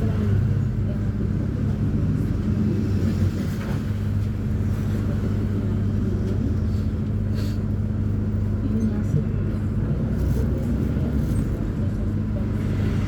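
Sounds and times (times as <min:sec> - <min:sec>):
diesel bus engine droning: 0:00.0 - 0:13.0.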